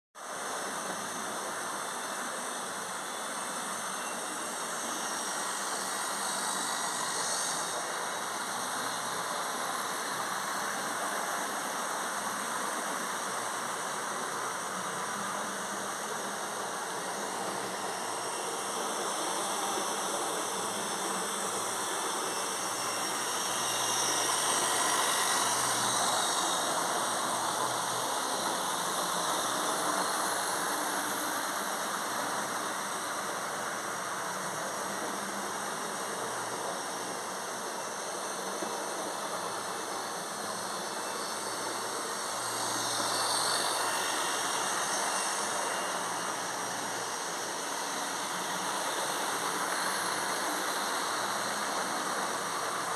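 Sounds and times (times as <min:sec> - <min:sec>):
model train whirring on track: 0:00.2 - 0:52.9.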